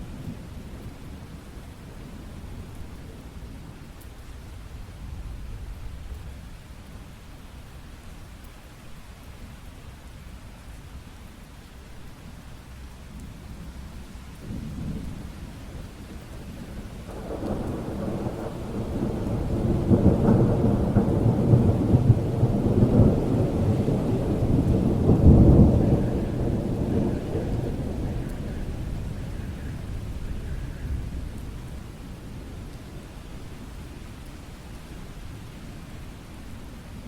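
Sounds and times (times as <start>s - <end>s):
steady rain: 0.0s - 37.0s
thunder rumbling: 14.5s - 33.1s.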